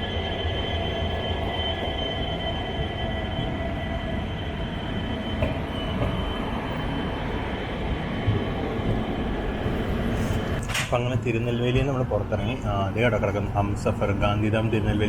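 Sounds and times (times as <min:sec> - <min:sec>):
wheels squealing on rails: 0:00.0 - 0:07.9
train low rumble: 0:00.0 - 0:15.0.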